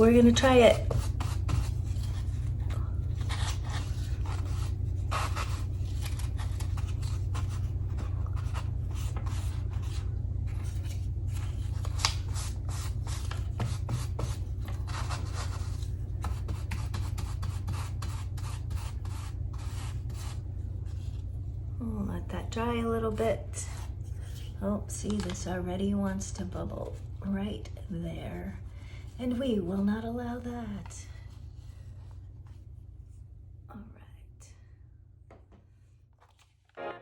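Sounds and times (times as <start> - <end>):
paper rubbing and rustling: 0.0 - 21.3, 36.2 - 36.7
steady low hum: 0.0 - 37.0.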